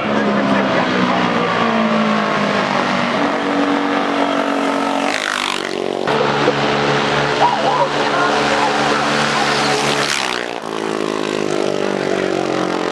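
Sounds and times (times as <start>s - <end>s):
vehicle engines running: 0.0s - 12.9s
vehicle sweeping past: 0.0s - 12.9s.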